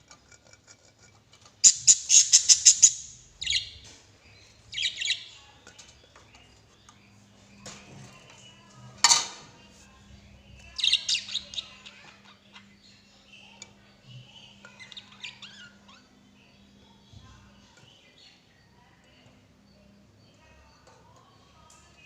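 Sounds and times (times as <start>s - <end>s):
lovebirds chirping: 1.6s - 7.7s.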